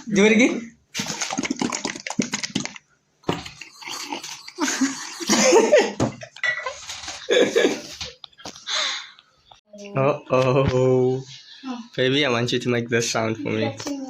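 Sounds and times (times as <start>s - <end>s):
person making breathy mouth noises: 3.4s - 5.3s.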